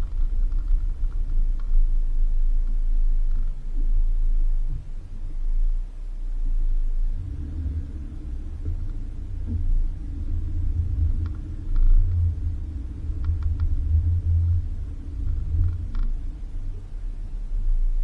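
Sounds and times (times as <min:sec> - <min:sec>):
light clicks and rattles: 0:00.0 - 0:03.7, 0:08.4 - 0:17.2
car rumbling on dirt road: 0:00.0 - 0:18.0.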